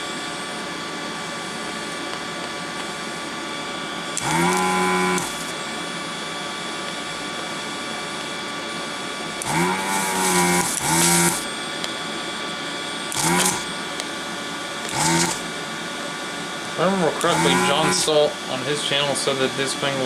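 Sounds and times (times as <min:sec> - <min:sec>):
vacuum pump buzzing: 0:00.0 - 0:20.0
steady hum: 0:09.4 - 0:11.6, 0:14.7 - 0:15.7, 0:16.4 - 0:20.0.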